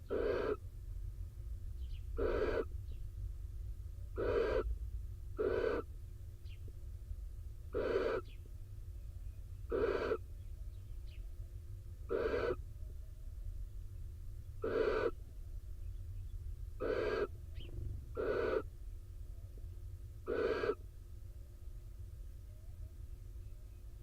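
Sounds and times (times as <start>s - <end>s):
owl hoarse calls: 0.0s - 0.6s, 2.2s - 3.0s, 4.1s - 4.8s, 5.4s - 5.9s, 7.7s - 8.5s, 9.6s - 10.4s, 12.0s - 12.7s, 14.6s - 15.3s, 16.8s - 18.7s, 20.2s - 20.9s.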